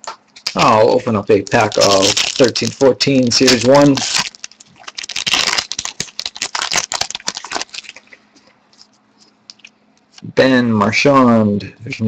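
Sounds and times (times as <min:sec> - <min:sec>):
card pack wrapper crinkling and tearing: 0:00.4 - 0:08.9.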